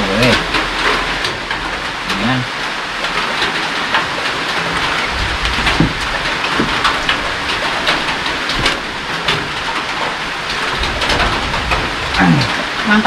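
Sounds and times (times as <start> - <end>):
steady rain: 0.0 - 13.0.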